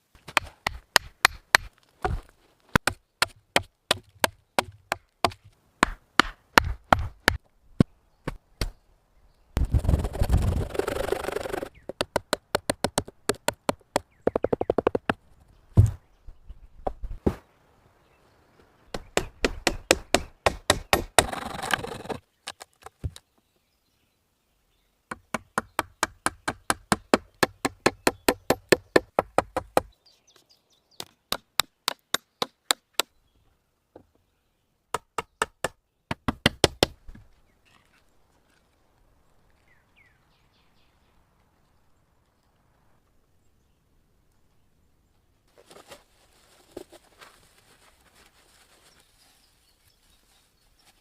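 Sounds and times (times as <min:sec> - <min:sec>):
rapid knocking on wood: 0:11.9 - 0:15.2.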